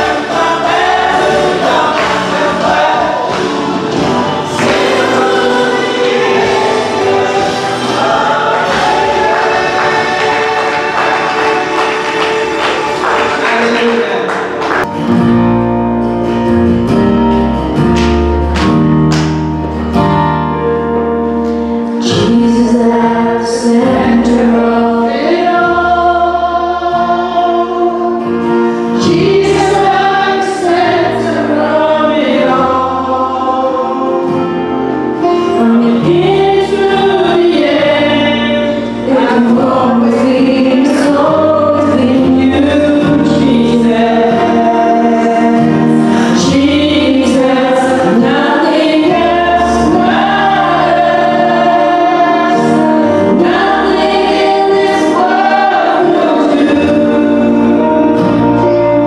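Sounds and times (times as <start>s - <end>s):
steady percussion beat: 0.0s - 13.5s
held bass notes: 0.0s - 13.6s, 14.2s - 59.0s
gospel choir singing: 0.0s - 15.1s, 21.6s - 59.0s.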